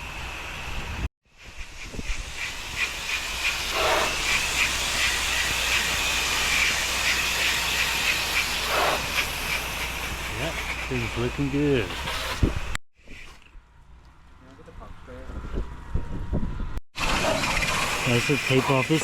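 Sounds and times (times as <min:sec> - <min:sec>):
pressure washer spray hissing: 0:02.1 - 0:12.6, 0:17.4 - 0:19.0.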